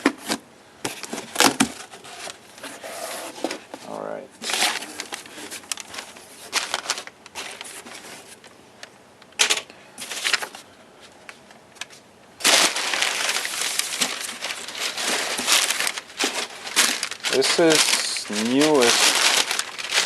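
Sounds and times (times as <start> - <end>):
packaging crinkling: 4.4 - 8.4, 11.8 - 20.0
packaging rustling and clicking: 4.4 - 8.5, 9.3 - 10.6, 11.3 - 20.0
packaging cracking: 12.4 - 20.0.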